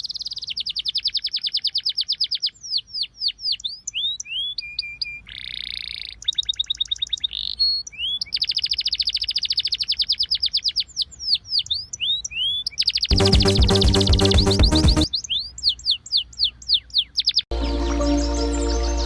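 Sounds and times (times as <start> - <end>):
songbird singing trills: 0.0 - 13.1.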